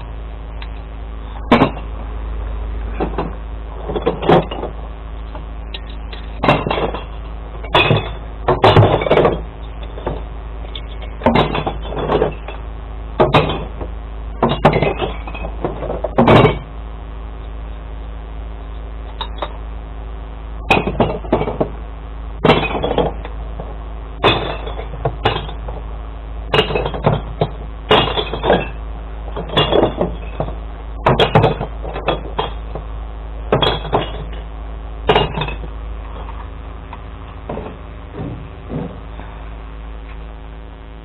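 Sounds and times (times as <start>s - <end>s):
truck engine running: 0.0s - 41.0s
glass bottles smashing: 5.8s - 12.6s, 13.2s - 13.8s, 14.4s - 16.7s, 22.4s - 23.3s, 24.2s - 25.8s, 26.5s - 32.8s, 33.5s - 34.5s, 35.1s - 36.4s.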